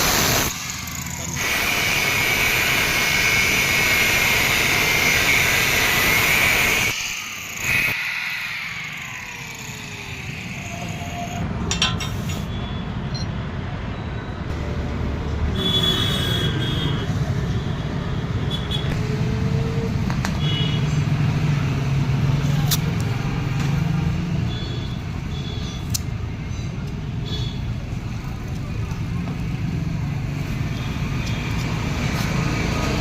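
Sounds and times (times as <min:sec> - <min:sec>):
electric grinder grinding: 0:00.0 - 0:11.4.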